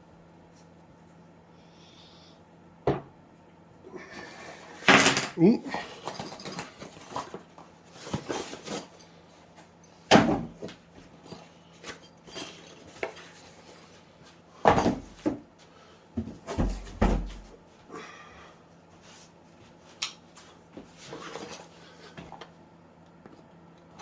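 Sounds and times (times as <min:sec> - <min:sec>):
parts and tools clattering: 0:04.7 - 0:15.4.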